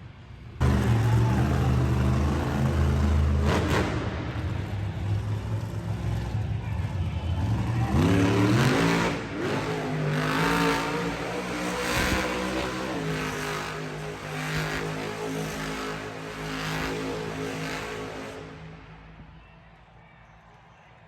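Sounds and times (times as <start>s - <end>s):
monster truck engine revving: 0.6s - 19.0s.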